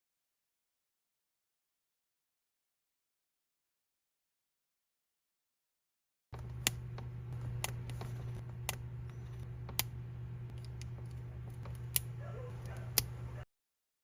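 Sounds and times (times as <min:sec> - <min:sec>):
steady low hum: 0:06.3 - 0:13.5
small plastic parts clicking: 0:10.5 - 0:13.1.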